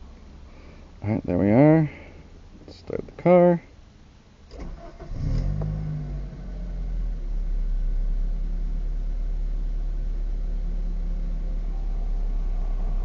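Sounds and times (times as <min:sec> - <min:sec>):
car engine revving and idling: 0:04.7 - 0:13.0.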